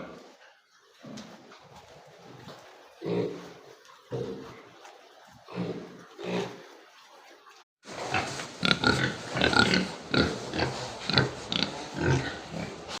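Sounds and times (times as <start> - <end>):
pigs grunting: 2.3 - 4.7, 5.4 - 6.7, 7.9 - 13.0.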